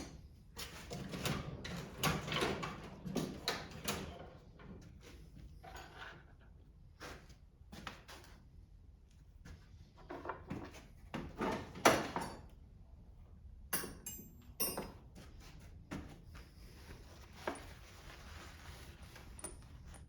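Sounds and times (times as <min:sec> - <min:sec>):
metal tools knocking and clicking: 0:13.7 - 0:15.1
ringing metal clinks: 0:13.8 - 0:15.0.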